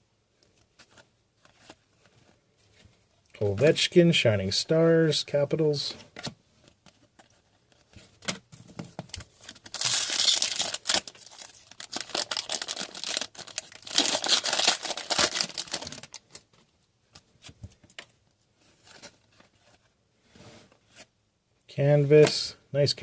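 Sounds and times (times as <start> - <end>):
foil wrappers crinkling and tearing: 9.2 - 16.4.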